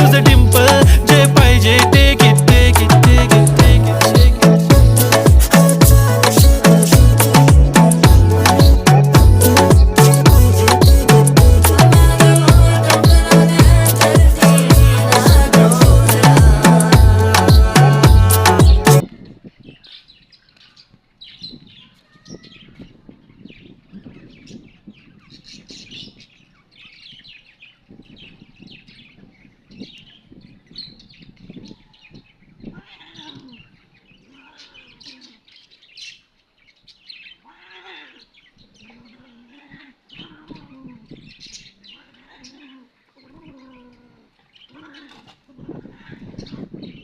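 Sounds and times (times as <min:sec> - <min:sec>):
loud music: 0:00.0 - 0:19.0
birds chirping: 0:00.0 - 0:47.0.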